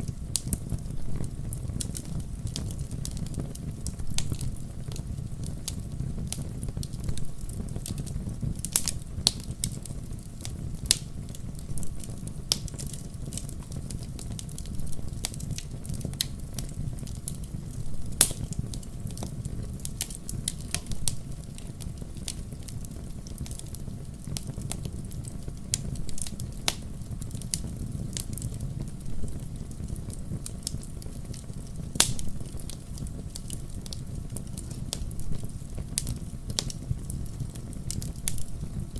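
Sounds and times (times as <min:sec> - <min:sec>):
burning wood crackling and popping: 0:00.0 - 0:38.9
low rumble of flames: 0:00.0 - 0:38.9.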